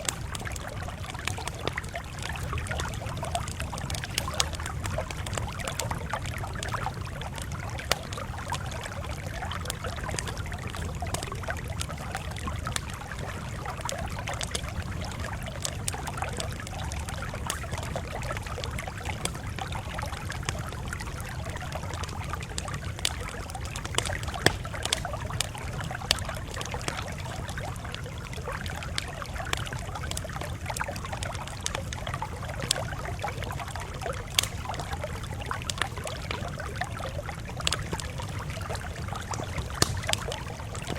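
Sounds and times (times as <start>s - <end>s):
sharp pops of fire: 0.0s - 8.4s, 22.5s - 27.1s, 34.2s - 36.7s, 37.5s - 40.9s
campfire crackling: 0.0s - 40.9s
low rumble of flame: 0.0s - 40.9s.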